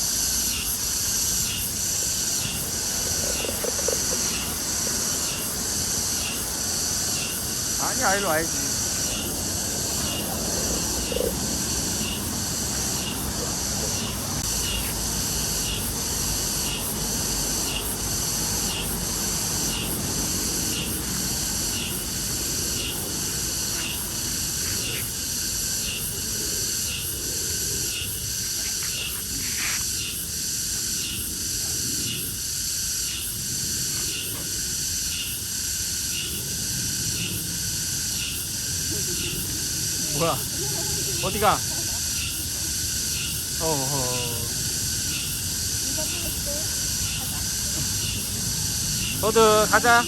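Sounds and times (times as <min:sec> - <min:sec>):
insects chirping: 0:00.0 - 0:50.0.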